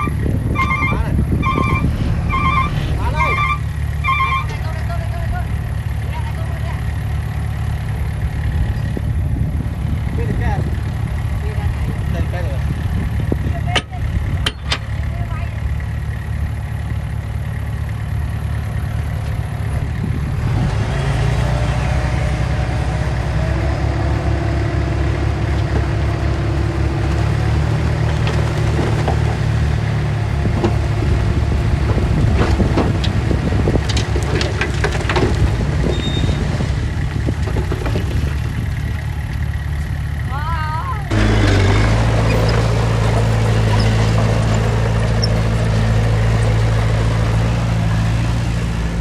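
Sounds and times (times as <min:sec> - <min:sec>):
diesel engine running: 0:00.0 - 0:49.0
metal clanks and knocks: 0:13.7 - 0:15.0, 0:28.0 - 0:29.8, 0:30.4 - 0:36.1.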